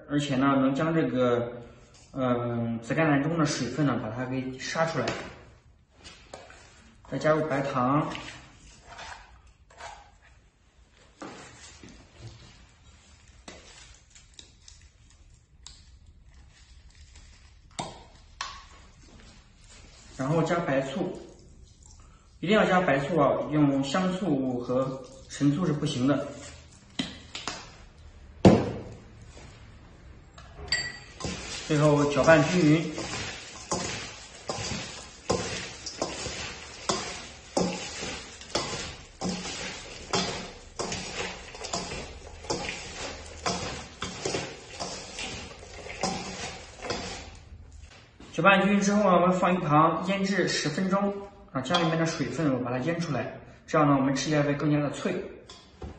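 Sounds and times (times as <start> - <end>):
moist rustling swish of cabbage: 8.2 - 21.9, 31.2 - 48.2
kitchenware clinking against bowl: 30.4 - 47.4, 51.7 - 52.0.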